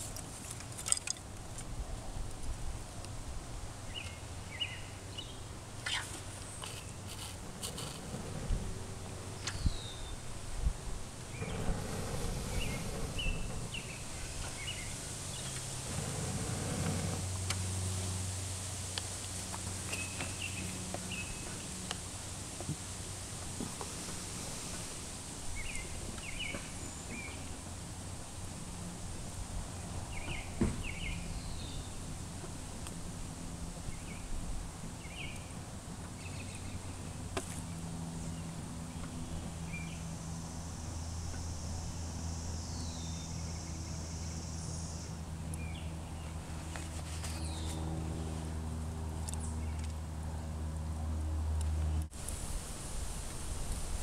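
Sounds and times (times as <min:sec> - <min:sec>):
steady low hum: 0:00.0 - 0:54.0
birds chirping: 0:03.9 - 0:17.2.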